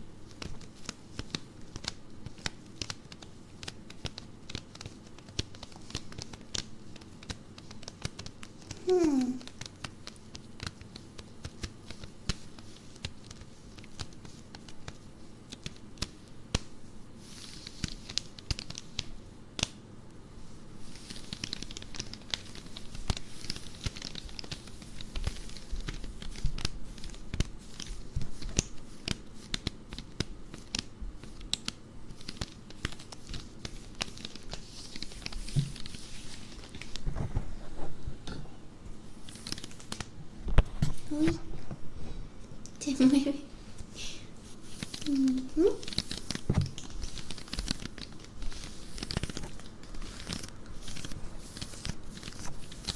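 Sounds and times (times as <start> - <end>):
hand scratching nylon stockings: 20.8 - 37.0, 44.4 - 52.9.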